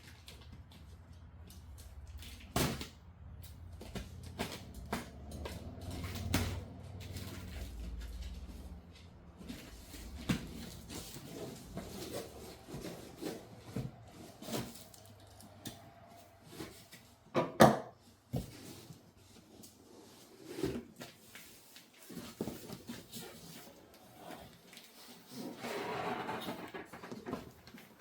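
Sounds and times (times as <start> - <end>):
cardboard box rubbing and knocking: 9.5 - 14.9.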